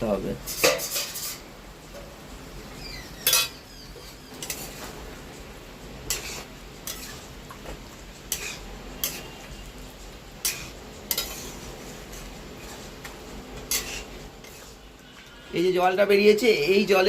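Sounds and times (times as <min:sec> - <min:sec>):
frying sizzle: 0:00.0 - 0:17.0
spatula scraping a pan: 0:00.5 - 0:01.5, 0:03.1 - 0:05.2, 0:05.8 - 0:15.4.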